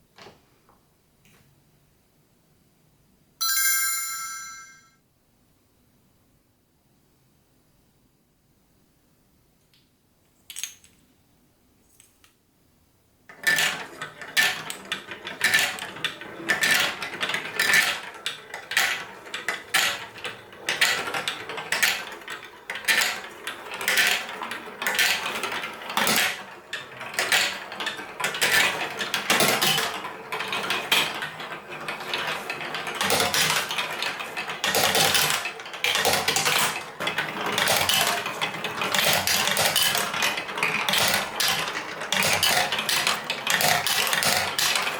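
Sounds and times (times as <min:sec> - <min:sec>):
marbles rattling through plastic run: 0:13.5 - 0:44.9.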